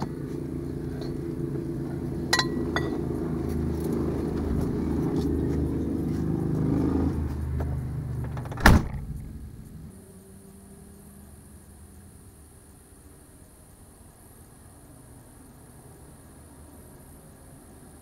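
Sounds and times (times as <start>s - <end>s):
car engine running: 0.0s - 9.9s.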